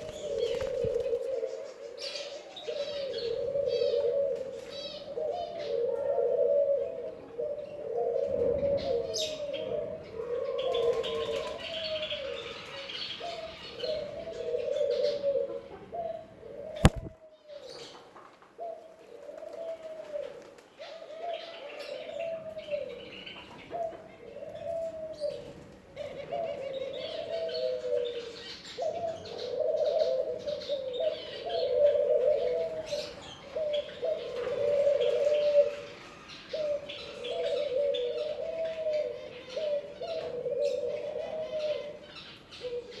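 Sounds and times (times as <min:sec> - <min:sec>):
pigeon cooing: 0:00.0 - 0:43.0
sharp click: 0:16.8 - 0:17.1.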